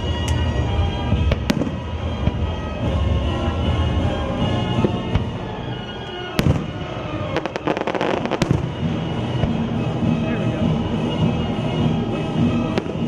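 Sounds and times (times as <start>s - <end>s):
music on loudspeakers: 0.0s - 13.0s
firework bang: 1.2s - 9.9s
crackling firework pops: 1.3s - 2.4s, 6.0s - 9.6s.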